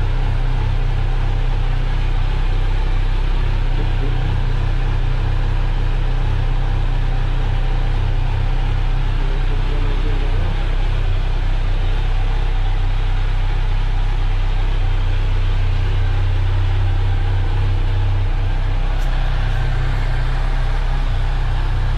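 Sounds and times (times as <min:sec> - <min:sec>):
motorcycle engine idling: 0:00.0 - 0:21.9.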